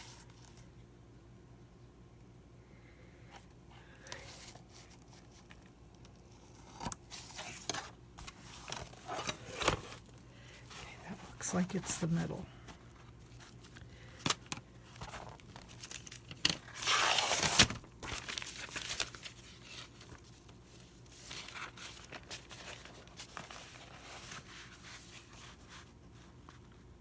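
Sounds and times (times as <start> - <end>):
paper pages rustling: 7.1 - 27.0.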